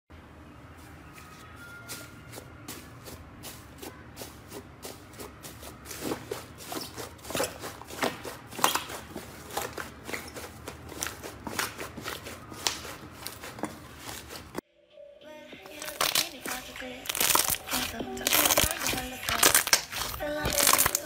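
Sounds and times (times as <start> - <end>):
slime crackling and popping: 15.7 - 21.0.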